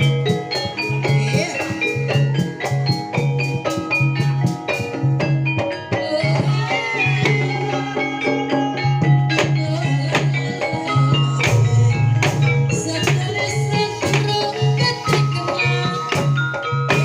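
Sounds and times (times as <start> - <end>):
drumming: 0.0 - 17.0
metallophones ringing: 0.0 - 17.0
low pulsing note: 11.4 - 14.2.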